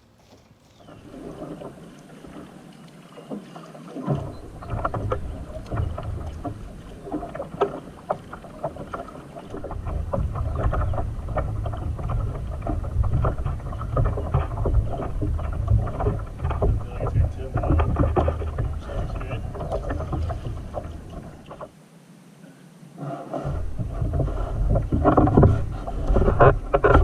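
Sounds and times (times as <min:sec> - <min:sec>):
paddle splashing in water: 0:00.0 - 0:21.8, 0:23.0 - 0:27.0
wind rumble on microphone: 0:04.1 - 0:21.7, 0:23.2 - 0:27.0.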